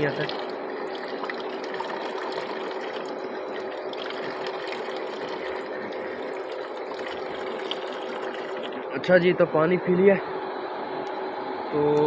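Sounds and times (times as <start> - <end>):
water running from a tap: 0.0 - 8.8
steady hum: 0.0 - 12.0.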